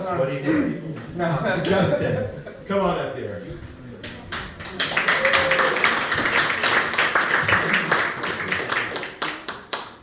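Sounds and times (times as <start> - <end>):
audience applauding: 4.4 - 10.0
whoops: 5.0 - 6.0.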